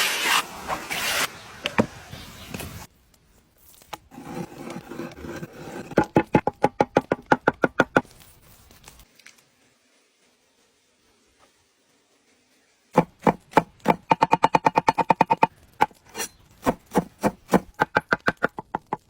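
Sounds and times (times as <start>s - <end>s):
rustling noise: 8.0s - 13.0s
knife chopping on wooden board: 16.6s - 19.0s.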